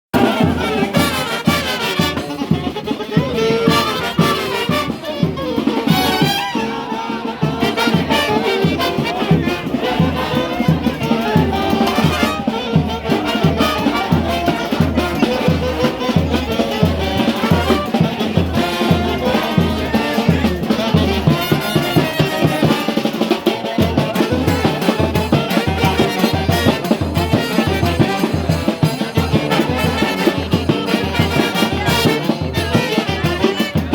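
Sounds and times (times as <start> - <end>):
fast drum beat: 0.2 - 33.9
trumpets and trombones: 0.2 - 33.9.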